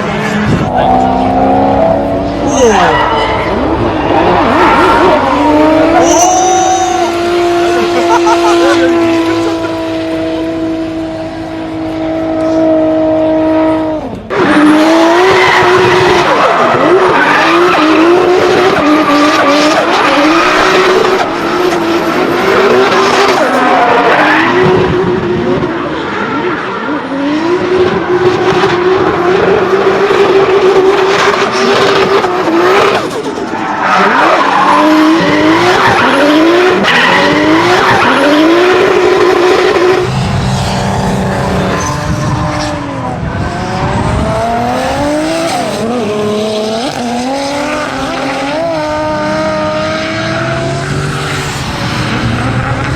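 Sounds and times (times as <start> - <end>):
car engine revving: 0.0 - 52.9
tyres squealing and skidding: 0.1 - 10.7, 14.3 - 24.8, 31.2 - 43.0.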